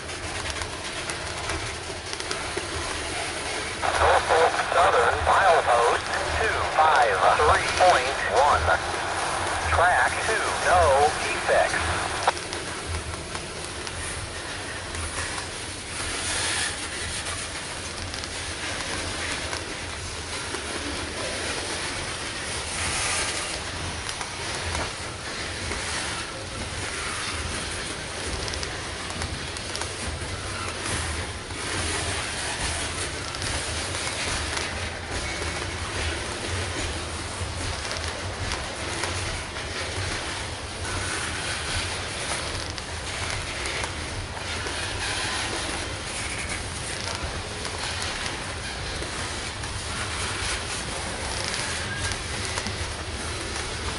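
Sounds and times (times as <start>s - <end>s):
train cars rumbling on rails: 21.6s - 53.9s.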